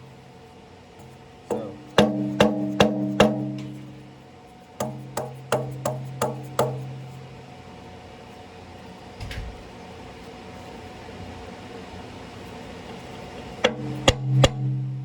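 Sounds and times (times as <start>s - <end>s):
hammer tapping on metal: 1.5s - 4.0s, 4.8s - 7.2s.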